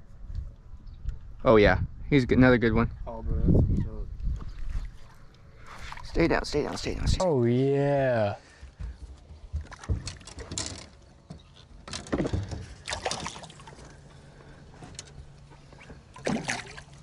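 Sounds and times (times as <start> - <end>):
fish thrashing water splashing: 12.7 - 13.8, 16.1 - 17.0.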